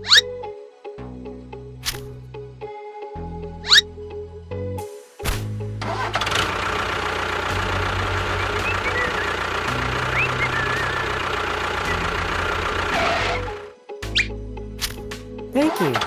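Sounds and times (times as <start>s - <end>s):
small engine running: 5.8s - 13.8s.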